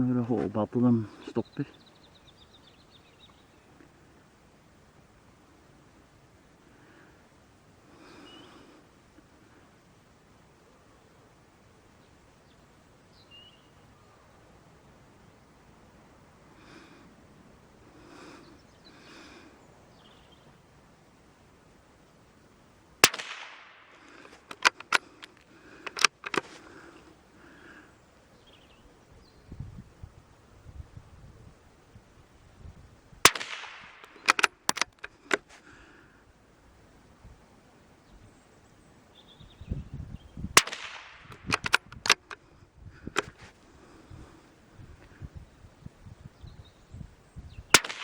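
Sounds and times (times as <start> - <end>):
rifle shot with echo: 23.0 - 25.1, 33.2 - 35.0, 40.6 - 42.3, 47.7 - 48.0
rifle bolt metallic clicks: 23.0 - 26.7, 33.3 - 35.5, 40.6 - 42.4, 43.1 - 43.4, 47.8 - 48.0.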